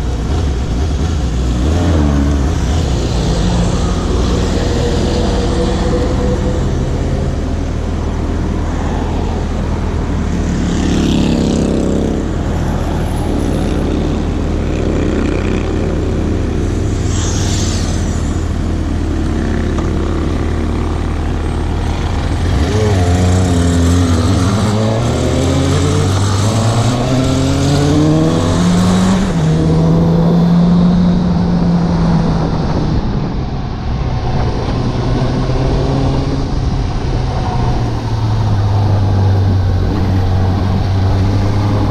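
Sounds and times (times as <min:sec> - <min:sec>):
motorcycle engine revving: 0:13.5 - 0:33.2
wind on microphone: 0:18.1 - 0:41.9.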